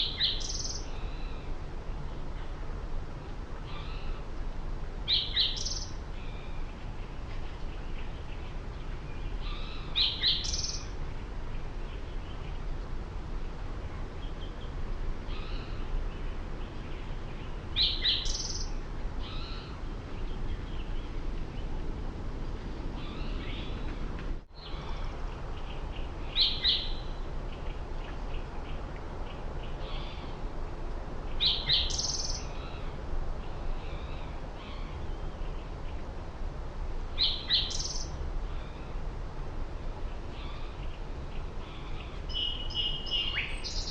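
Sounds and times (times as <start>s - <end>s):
birds chirping: 0.0s - 0.9s, 15.3s - 21.8s, 31.3s - 36.0s, 37.2s - 38.2s
low background rumble: 0.0s - 43.9s.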